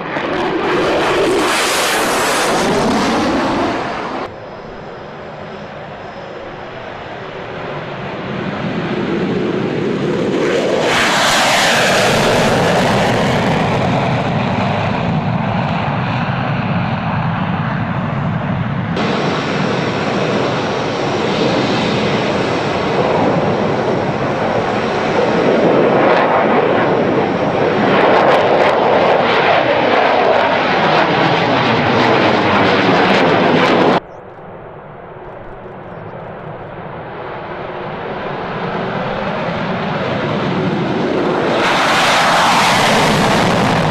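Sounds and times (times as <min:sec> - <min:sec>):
fighter jet passing by: 0:00.0 - 0:43.9.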